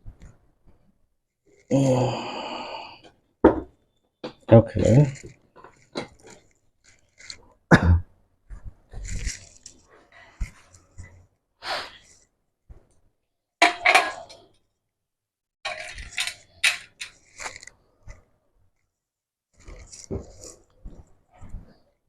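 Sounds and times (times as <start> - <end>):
metal cover scraping: 13.6 - 14.4.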